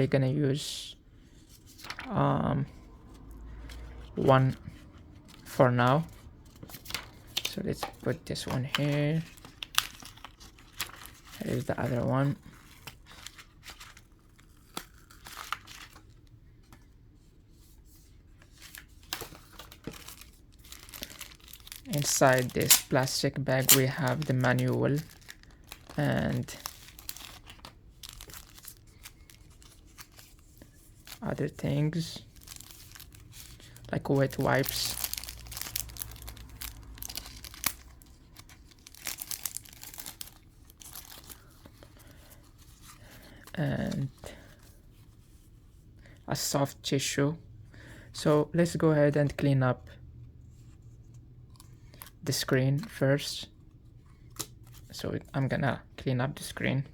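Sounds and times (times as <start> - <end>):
plastic packaging crinkling: 6.7 - 16.3, 18.6 - 44.2.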